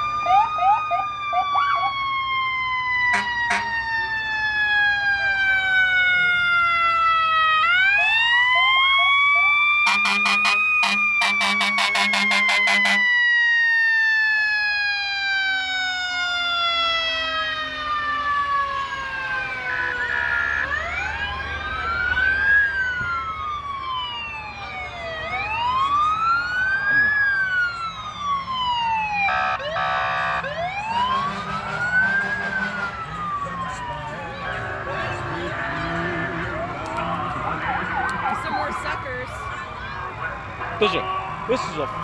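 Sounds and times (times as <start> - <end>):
fire truck sirens wailing: 0.0 - 42.0
short horn blasts: 9.9 - 13.1, 29.3 - 30.4.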